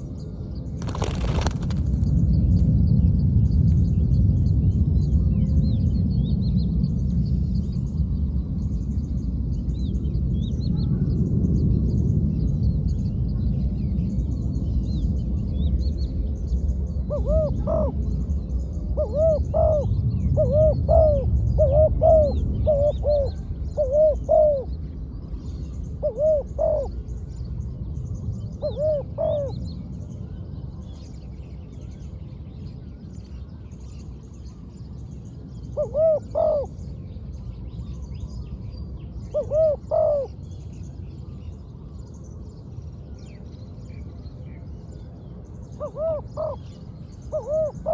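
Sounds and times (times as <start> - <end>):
low rumble: 0.5 - 17.1
dove cooing: 17.1 - 18.0, 19.0 - 24.7, 26.0 - 27.0, 28.6 - 29.5, 35.8 - 36.7, 39.3 - 40.3, 45.8 - 46.6, 47.3 - 47.9.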